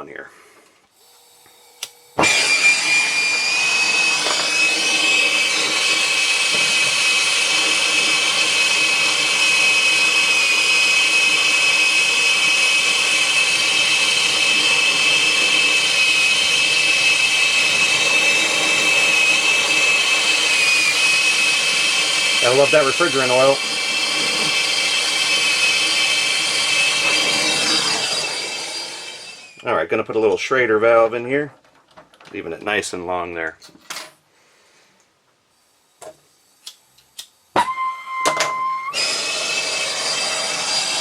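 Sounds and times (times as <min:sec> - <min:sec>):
power tool motor whining: 0:01.0 - 0:29.6, 0:37.6 - 0:41.0.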